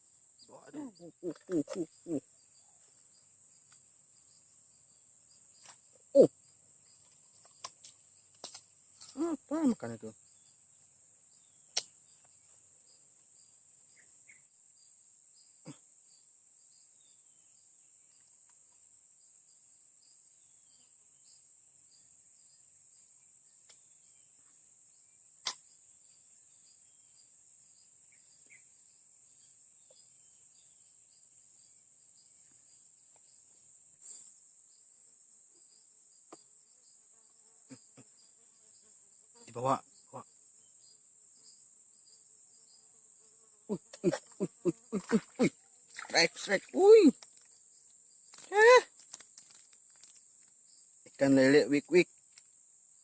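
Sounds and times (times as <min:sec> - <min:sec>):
insects chirring: 0:00.0 - 0:53.0.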